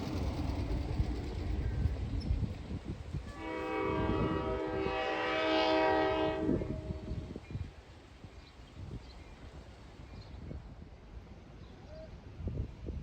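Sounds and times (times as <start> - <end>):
locomotive air horn blast: 3.3 - 7.2.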